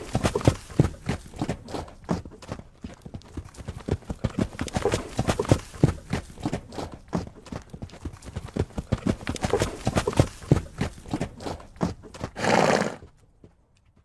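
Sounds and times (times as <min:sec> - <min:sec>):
horse hooves clip-clopping: 0:00.0 - 0:14.0
horse vocalising: 0:08.8 - 0:13.1.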